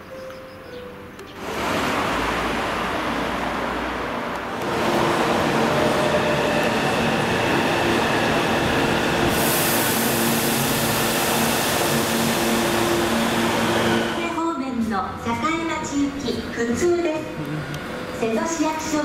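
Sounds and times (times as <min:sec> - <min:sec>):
broad outdoor noise: 0:00.0 - 0:09.4, 0:10.0 - 0:19.0
echoing station noise: 0:01.0 - 0:19.0
train machinery humming: 0:01.0 - 0:19.0
high hiss: 0:09.3 - 0:12.6.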